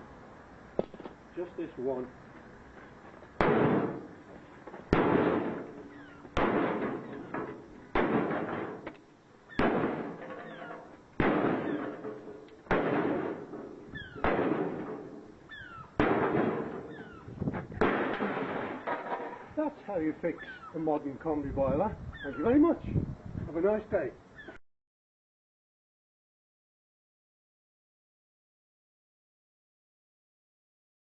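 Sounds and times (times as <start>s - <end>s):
metal casing rattling: 4.8s - 8.9s, 9.7s - 15.4s.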